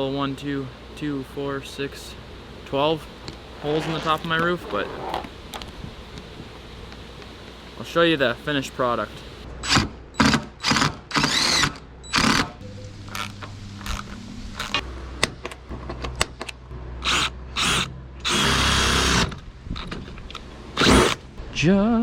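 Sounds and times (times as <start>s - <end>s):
power drill boring through sheet metal: 10.6s - 12.5s, 17.0s - 19.3s, 20.8s - 21.2s.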